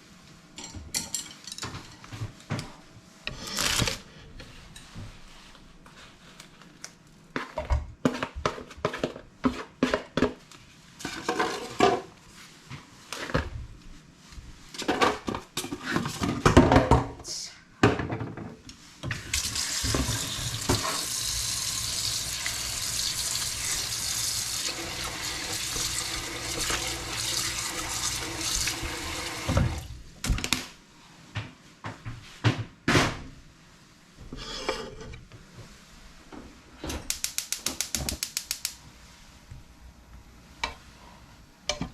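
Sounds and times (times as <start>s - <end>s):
tap water running into sink: 19.3s - 29.9s.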